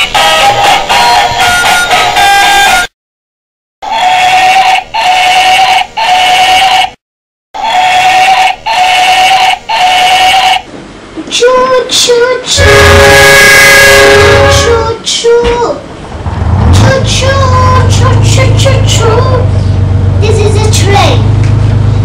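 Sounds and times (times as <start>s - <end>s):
toy train electronic toots: 0.0s - 2.9s, 3.8s - 7.0s, 7.7s - 10.6s.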